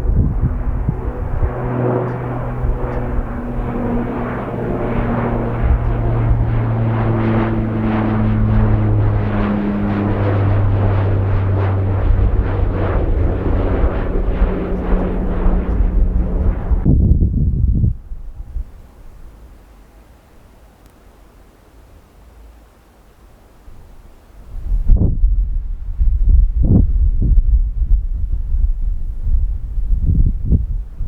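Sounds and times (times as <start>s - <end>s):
wind rumbling on microphone: 0.0s - 19.6s, 23.7s - 31.0s
airliner engines droning: 0.0s - 20.1s.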